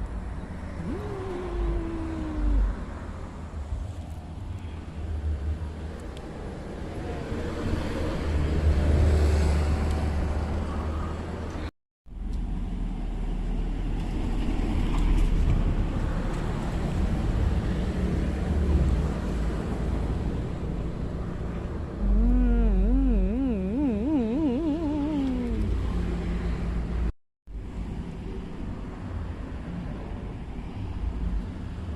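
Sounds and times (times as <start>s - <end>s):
road traffic rumble: 0.0s - 31.9s.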